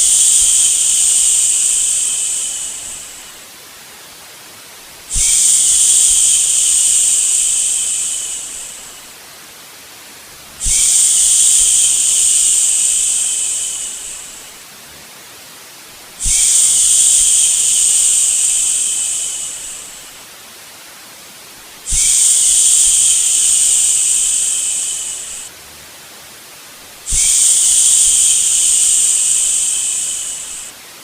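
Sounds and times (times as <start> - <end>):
white noise hiss: 0.0 - 31.0.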